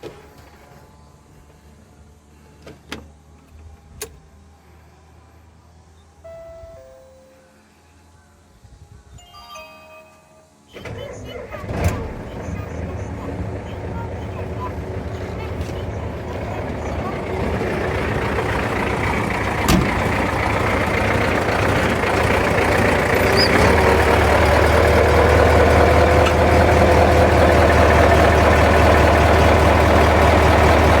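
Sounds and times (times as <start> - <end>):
car engine running: 10.8 - 31.0.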